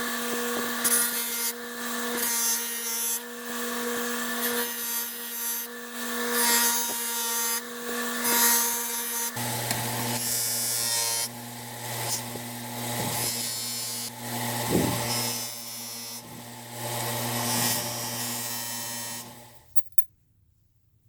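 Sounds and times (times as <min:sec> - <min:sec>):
power tool humming: 0:00.0 - 0:19.7.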